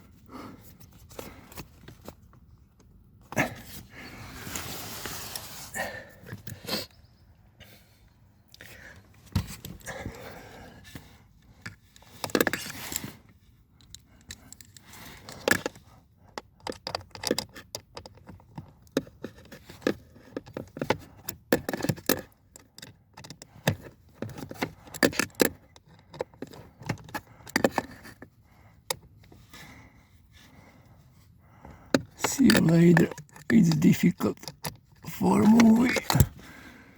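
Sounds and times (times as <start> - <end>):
hand tools clicking and scraping: 13.9 - 29.4, 31.7 - 36.4.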